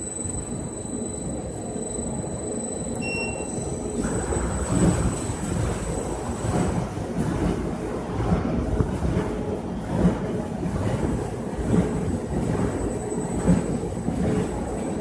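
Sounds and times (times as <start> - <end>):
brief high tone: 2.6 - 3.7.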